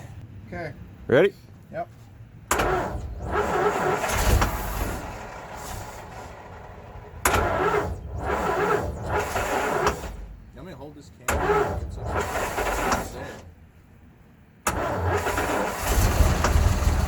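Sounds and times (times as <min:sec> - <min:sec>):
engine cranking on starter: 0:02.5 - 0:10.5, 0:11.2 - 0:13.5, 0:14.6 - 0:17.0.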